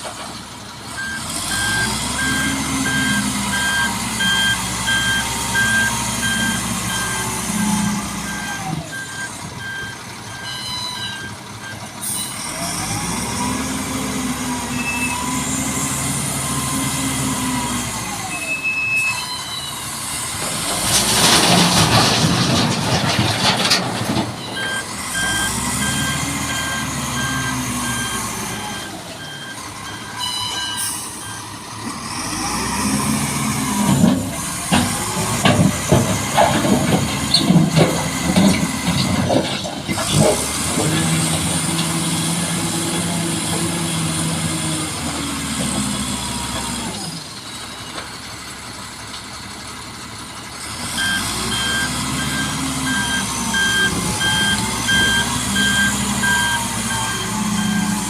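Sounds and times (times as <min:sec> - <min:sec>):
truck engine revving: 0:00.8 - 0:10.4, 0:12.3 - 0:18.5, 0:19.9 - 0:30.2, 0:30.8 - 0:47.4, 0:50.4 - 0:58.0
reversing alarm beeping: 0:01.0 - 0:12.4, 0:18.2 - 0:19.8, 0:24.4 - 0:31.5, 0:51.0 - 0:58.0.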